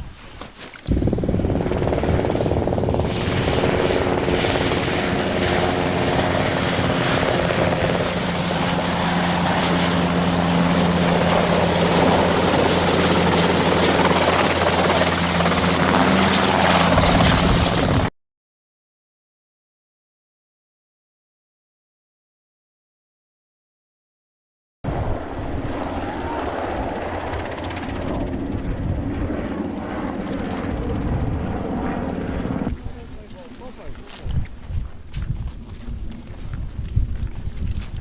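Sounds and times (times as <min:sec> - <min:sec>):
helicopter engine and rotor: 0:00.9 - 0:18.1, 0:24.9 - 0:36.5.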